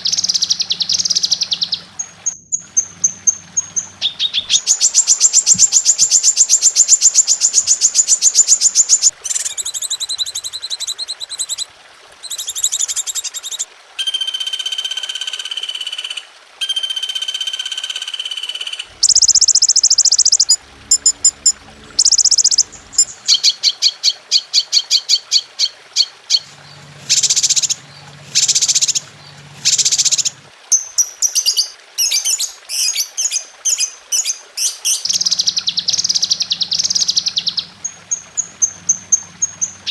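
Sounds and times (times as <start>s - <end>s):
rapid bird chirps: 0.0s - 14.8s, 15.6s - 39.9s
whistled bird notes: 12.3s - 26.4s
buzzing bird trills: 14.0s - 24.2s, 24.9s - 32.2s, 34.6s - 39.9s.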